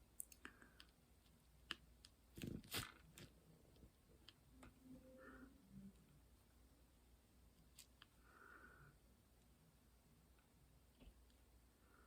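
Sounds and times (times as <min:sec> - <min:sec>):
faint small clicks and taps: 0:00.1 - 0:04.8.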